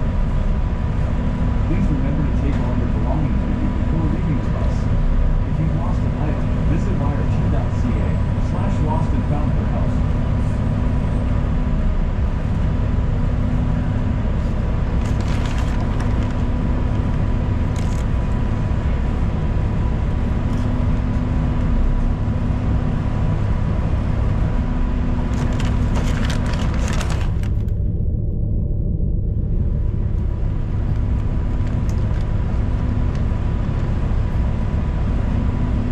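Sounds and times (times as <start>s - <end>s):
bus engine and road rumble: 0.0s - 35.9s
sharp clicks and rattles: 15.0s - 16.6s, 17.7s - 18.4s, 20.5s - 20.8s, 25.3s - 27.8s, 30.9s - 32.4s.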